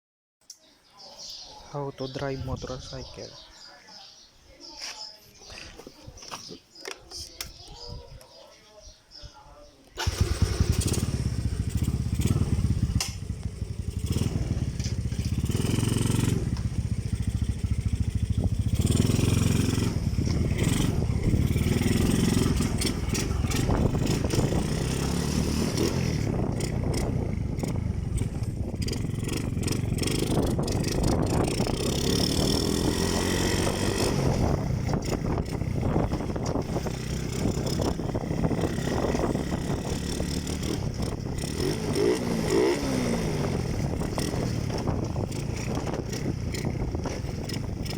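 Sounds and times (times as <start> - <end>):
motorcycle engine running: 10.0 - 47.9.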